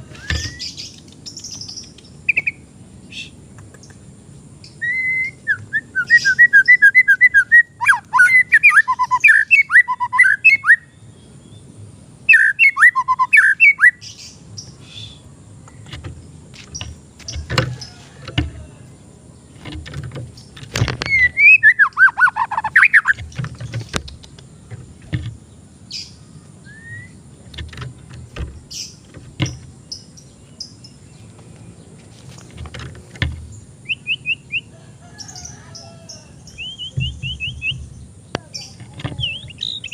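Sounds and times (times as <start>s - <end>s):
bird singing whistled phrases: 4.7s - 10.9s, 12.3s - 14.0s, 21.0s - 23.2s, 26.6s - 27.2s, 33.8s - 34.7s, 36.5s - 37.8s.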